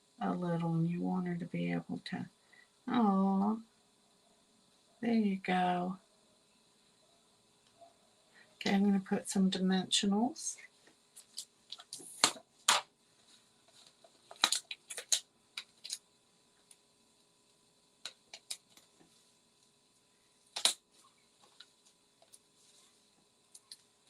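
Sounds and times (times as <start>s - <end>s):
paper clicks and crinkles: 11.2s - 16.0s.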